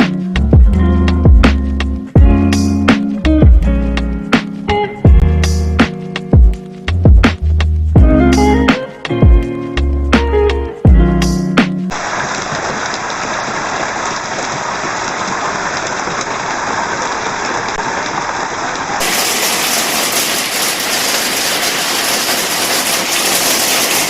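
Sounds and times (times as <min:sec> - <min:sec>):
heavy rain pouring: 0:11.9 - 0:24.0.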